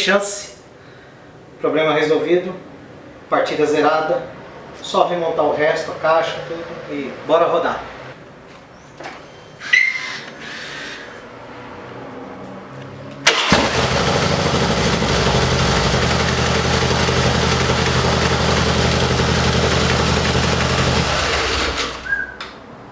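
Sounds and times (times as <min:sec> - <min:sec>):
electric starter: 0:13.3 - 0:22.2
motorcycle engine idling: 0:13.5 - 0:22.1.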